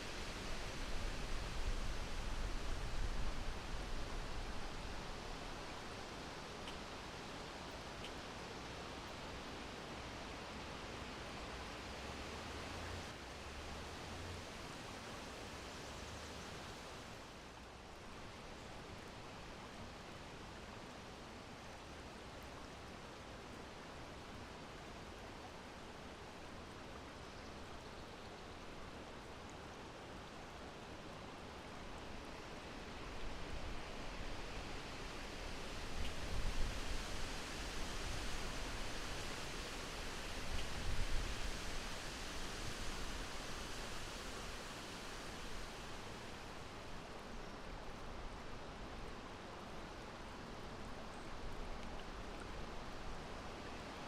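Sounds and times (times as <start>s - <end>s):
steady wind noise: 0.0s - 6.0s, 32.2s - 48.9s.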